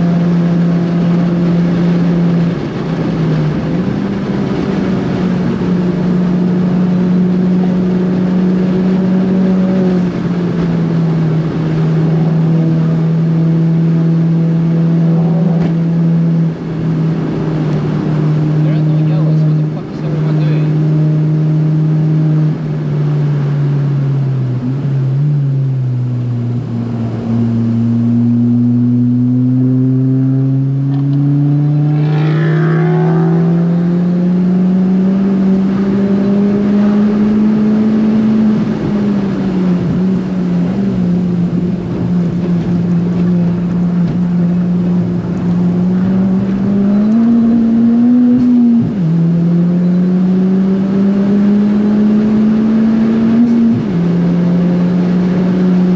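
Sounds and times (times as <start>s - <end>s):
car engine revving: 0.0s - 55.9s.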